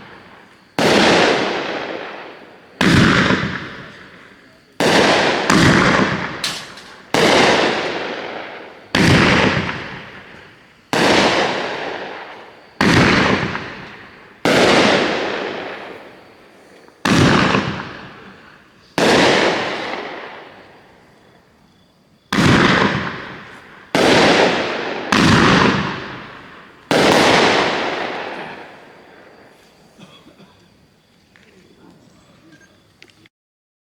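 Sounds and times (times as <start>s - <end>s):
fireworks bangs: 0.0s - 32.8s.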